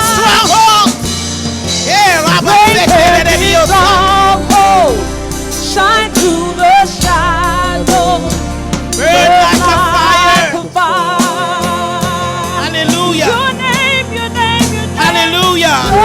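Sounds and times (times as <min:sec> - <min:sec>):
sustained instrumental accompaniment: 0:00.0 - 0:16.0
person singing with vibrato: 0:01.9 - 0:16.0.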